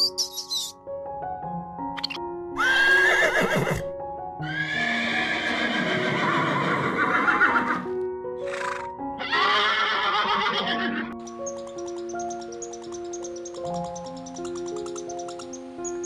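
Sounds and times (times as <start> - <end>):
horse squeal: 2.6 - 3.8, 4.4 - 7.8, 8.5 - 11.2
horse whinnying: 2.6 - 11.2
simple stepping background music: 10.9 - 16.0.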